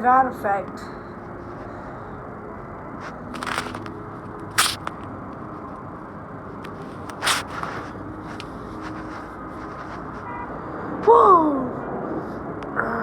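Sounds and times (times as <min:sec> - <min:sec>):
steady background noise: 0:00.0 - 0:13.0
loud scraping noises: 0:03.0 - 0:03.9, 0:04.6 - 0:05.1, 0:06.9 - 0:10.4.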